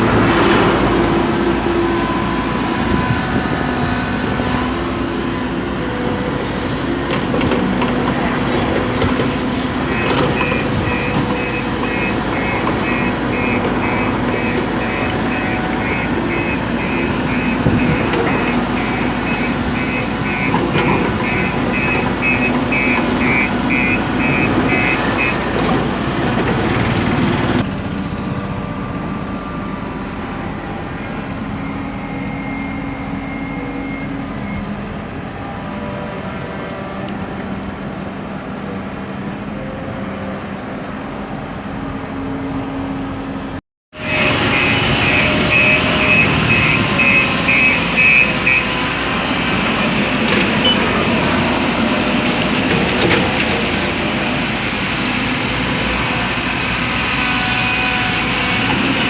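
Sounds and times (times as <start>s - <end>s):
heavy machine engine rumble: 0.0s - 59.0s
reversing alarm beeping: 9.8s - 25.6s, 30.5s - 34.8s, 44.0s - 51.2s.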